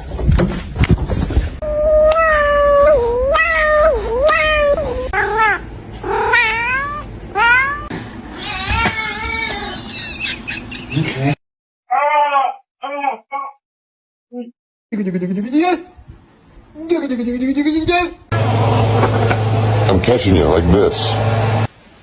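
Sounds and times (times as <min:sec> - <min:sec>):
cat meowing: 0:01.6 - 0:09.9.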